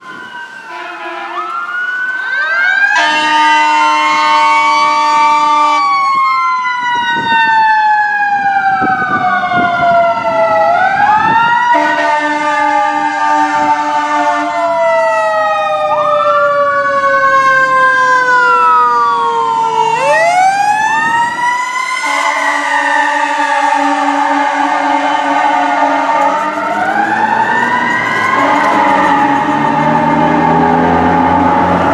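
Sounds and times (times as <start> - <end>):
wailing sirens: 0.0 - 31.9
fire engine air horns blasting: 0.6 - 1.8, 2.8 - 6.0, 11.2 - 14.9, 21.1 - 31.9.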